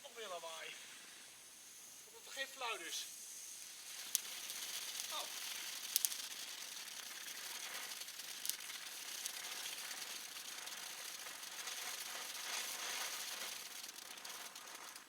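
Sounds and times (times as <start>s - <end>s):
firework hissing and crackling: 0.0s - 15.0s
firework pops: 3.6s - 10.2s.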